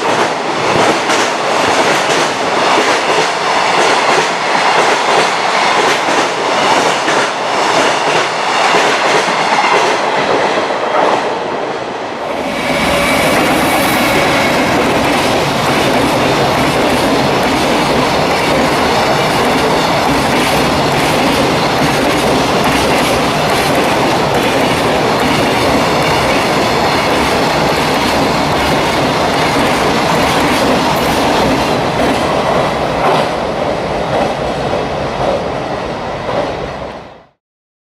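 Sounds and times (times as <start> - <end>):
freight train wheels clattering: 12.2 - 33.4.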